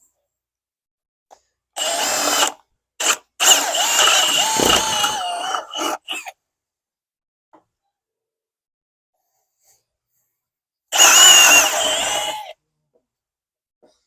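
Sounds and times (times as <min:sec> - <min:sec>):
handheld power tool motor: 0:01.8 - 0:06.2, 0:11.0 - 0:12.5.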